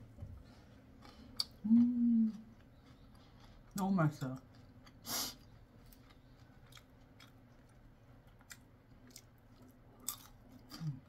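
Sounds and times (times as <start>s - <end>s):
crunchy chewing clicks: 2.3s - 11.0s.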